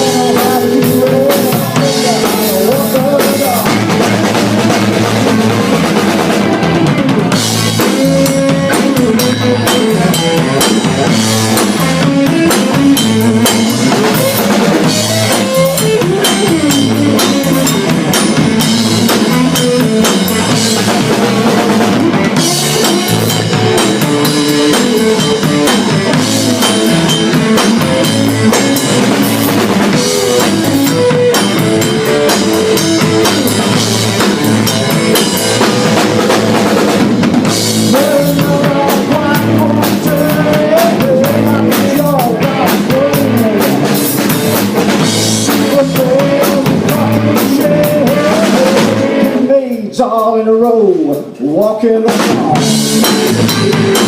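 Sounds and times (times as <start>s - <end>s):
drum kit rimshots: 0.0s - 54.0s
live band playing: 0.0s - 54.0s.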